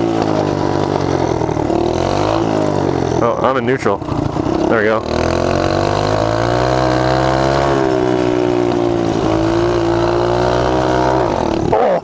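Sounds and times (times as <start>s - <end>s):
mini bike engine pulling away: 0.0s - 12.0s.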